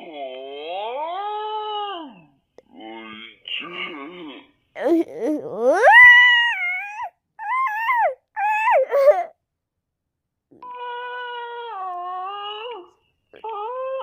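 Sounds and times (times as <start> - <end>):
cat-like wailing cries: 4.8 - 9.3.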